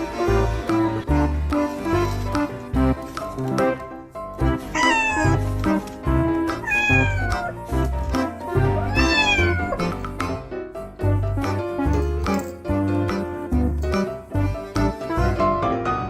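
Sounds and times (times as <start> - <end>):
background music: 0.0 - 16.0
cat meowing: 4.6 - 5.4, 6.5 - 7.6, 8.6 - 9.9.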